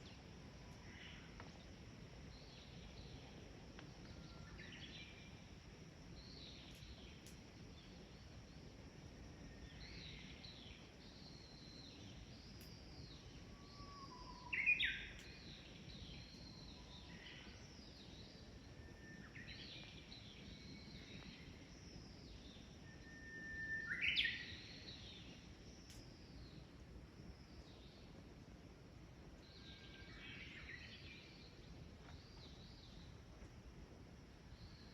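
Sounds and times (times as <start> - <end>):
faint background hiss: 0.0 - 34.9
birds singing: 9.8 - 18.5.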